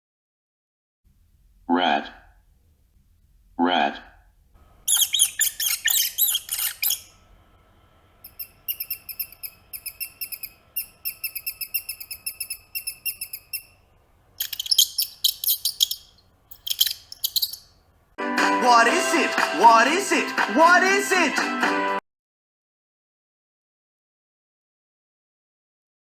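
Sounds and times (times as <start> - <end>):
rat squeaking: 4.7 - 7.3, 8.2 - 17.8.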